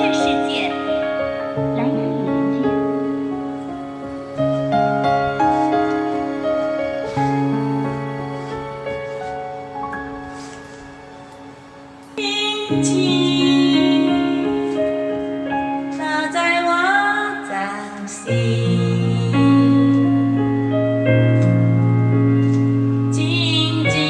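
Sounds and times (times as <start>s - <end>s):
woman singing: 0.0s - 1.1s, 12.2s - 20.4s, 23.1s - 24.0s
piano: 0.0s - 24.0s
sustained backing chords: 0.0s - 24.0s.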